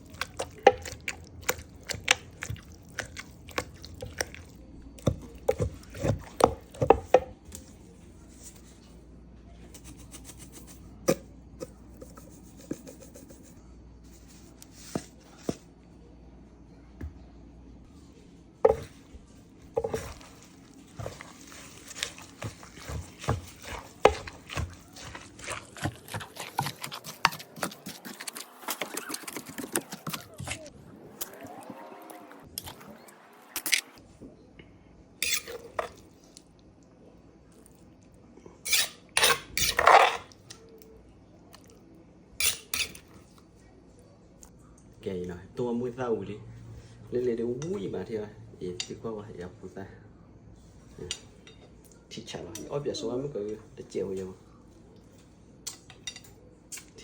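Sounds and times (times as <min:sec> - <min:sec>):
food knocks and clicks: 0:21.0 - 0:30.5.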